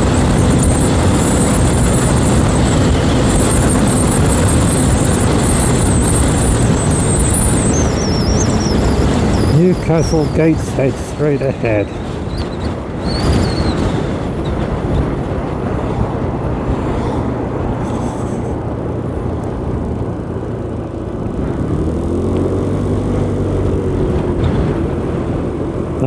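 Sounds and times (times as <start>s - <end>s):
engine note rising and falling: 0.0s - 25.2s
motorcycle engine hum: 0.0s - 26.0s
wind and road noise: 0.0s - 26.0s.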